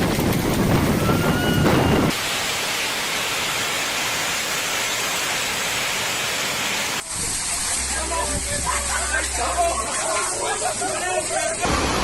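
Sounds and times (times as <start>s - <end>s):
wind buffeting microphone: 0.0s - 2.2s
heavy hail and rain falling: 0.0s - 12.0s.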